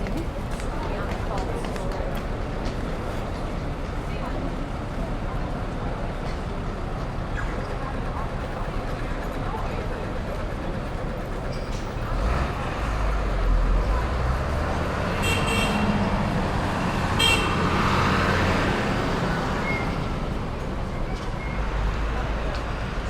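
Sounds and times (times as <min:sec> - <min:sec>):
road traffic noise: 0:00.0 - 0:23.0
heavy vehicle rumbling past: 0:11.9 - 0:23.0
car horn toots: 0:17.2 - 0:17.6.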